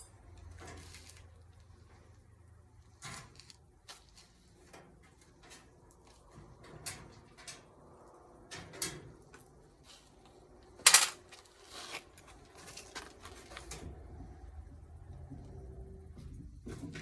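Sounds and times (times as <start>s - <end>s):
loud metal clatter: 10.8s - 11.2s
metal parts knocking and clicking: 10.8s - 11.3s.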